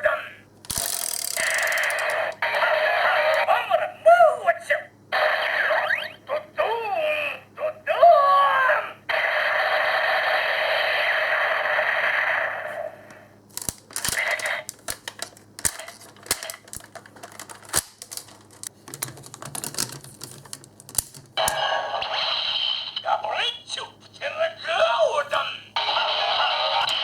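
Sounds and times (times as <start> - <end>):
plastic clicks of toy handling: 0.6 - 2.4, 13.5 - 21.4
electronic toy buzzing sound effect: 0.7 - 3.6, 5.1 - 6.4, 9.1 - 13.0.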